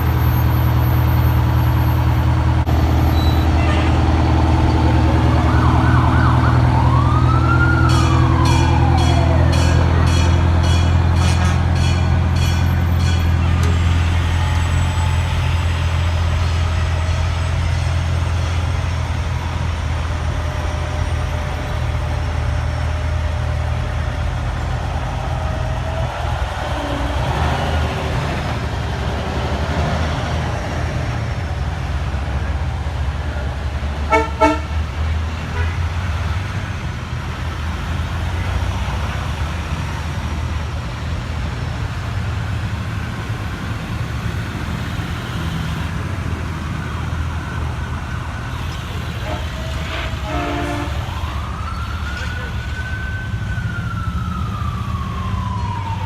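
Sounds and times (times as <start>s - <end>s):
fire truck engines rumbling: 0.0s - 56.0s
horn toots: 34.1s - 34.8s, 48.6s - 51.2s.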